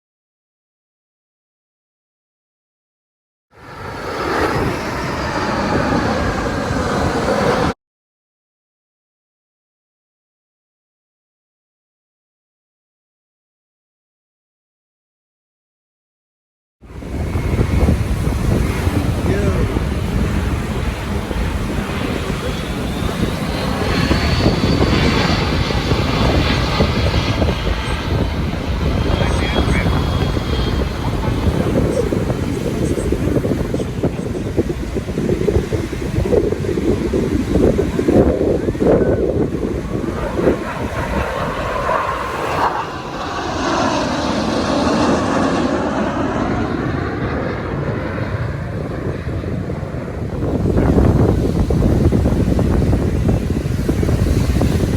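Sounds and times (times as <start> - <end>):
aircraft engine rumble: 3.6 - 7.8, 16.8 - 54.9.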